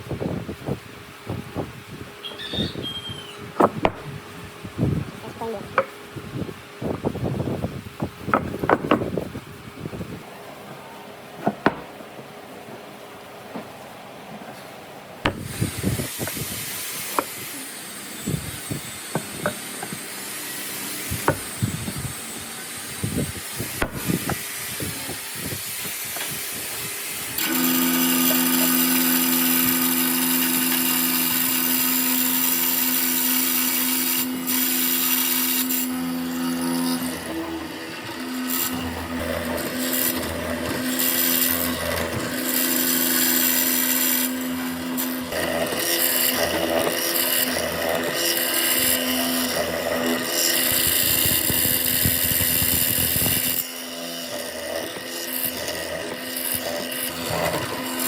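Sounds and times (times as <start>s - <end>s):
wood knocking and tapping: 8.3s - 9.1s, 11.4s - 11.9s
electric power tool humming: 15.2s - 58.0s.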